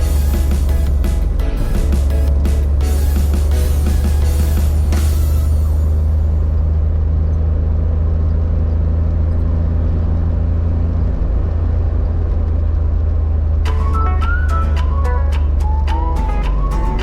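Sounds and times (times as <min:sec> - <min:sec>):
car engine droning: 0:00.0 - 0:17.0.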